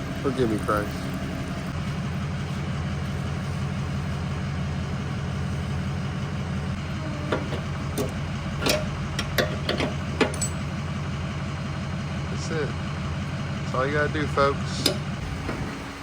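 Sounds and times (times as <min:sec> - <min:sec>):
engine idling: 0:00.0 - 0:16.0
sharp clicks and knocks: 0:07.3 - 0:10.7.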